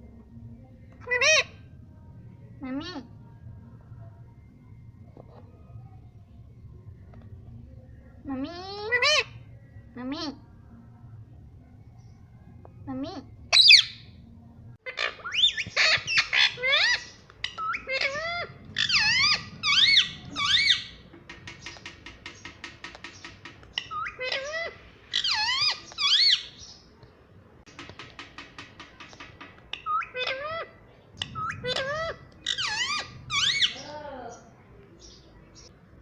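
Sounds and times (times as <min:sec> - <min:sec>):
parrot squawking: 0:13.5 - 0:14.0, 0:14.8 - 0:21.0, 0:23.8 - 0:26.6, 0:29.7 - 0:33.9.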